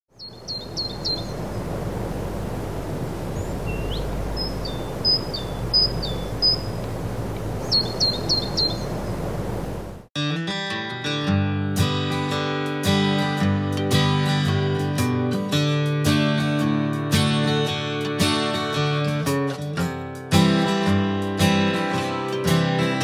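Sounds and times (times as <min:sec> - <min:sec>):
songbird whistled notes: 0:00.2 - 0:01.6, 0:03.4 - 0:06.8, 0:07.6 - 0:09.2
low outdoor rush: 0:00.6 - 0:10.1
acoustic guitar music: 0:10.2 - 0:23.0.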